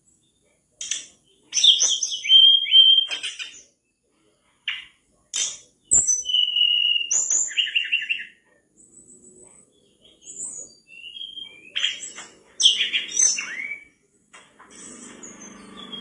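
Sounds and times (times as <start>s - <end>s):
bird singing whistled phrases: 1.5s - 3.6s, 5.9s - 8.4s, 10.1s - 14.0s, 14.8s - 16.0s.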